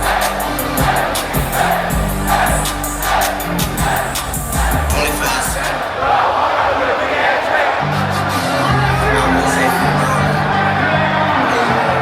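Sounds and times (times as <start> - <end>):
crowd shouting along: 0.0 - 12.0
hip-hop music over loudspeakers: 0.0 - 12.0.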